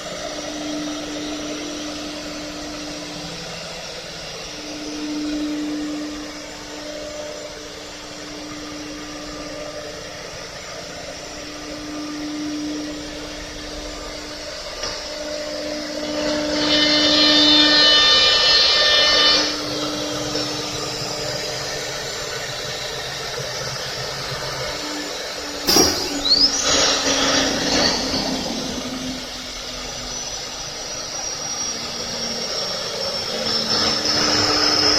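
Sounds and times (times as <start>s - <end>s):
short rush of noise: 25.7s - 26.7s
sharp knock: 25.7s - 26.8s.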